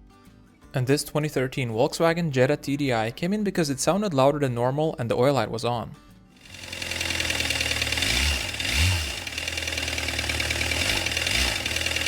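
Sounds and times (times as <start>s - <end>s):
diesel engine running loudly: 6.4s - 12.0s.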